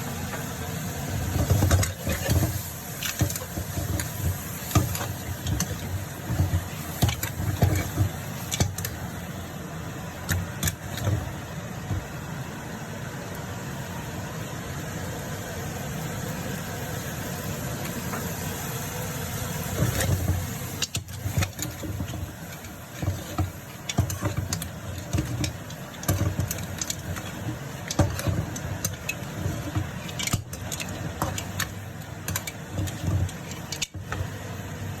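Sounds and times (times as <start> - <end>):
food sizzling in a wok: 0.0 - 12.6, 14.6 - 35.0
gas burner rushing: 0.0 - 35.0
metal spatula scraping a pan: 1.2 - 9.0, 19.7 - 34.3.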